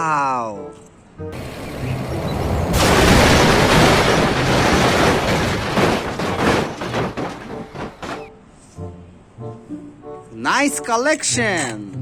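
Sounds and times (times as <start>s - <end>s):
loud crashing noise: 1.5s - 8.3s
scattered clicks and knocks: 3.4s - 8.3s.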